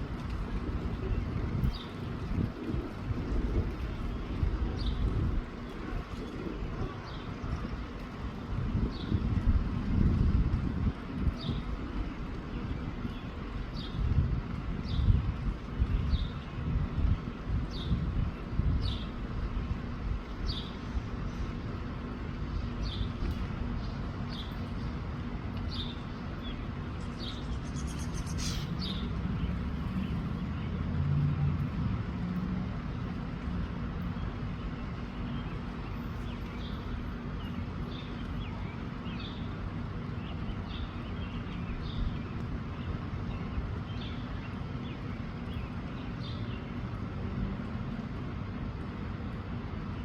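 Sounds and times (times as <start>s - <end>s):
wind rumbling on microphone: 0.0s - 50.0s
small birds chirping: 25.7s - 30.7s.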